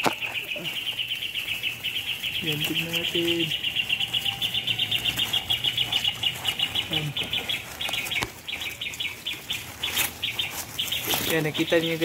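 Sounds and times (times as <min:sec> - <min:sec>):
songbird alarm chirping: 0:00.0 - 0:12.0.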